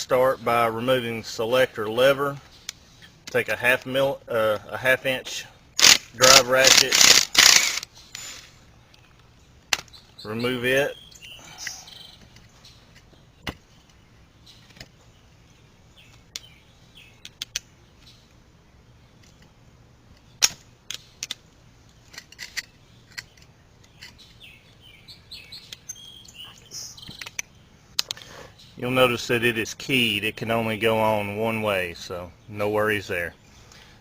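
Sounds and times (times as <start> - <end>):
ratchet clicks: 5.8 - 7.9.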